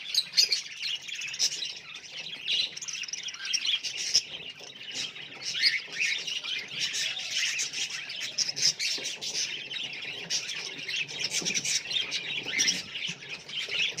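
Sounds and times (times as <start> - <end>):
budgerigars chirping and chattering: 0.0 - 14.0.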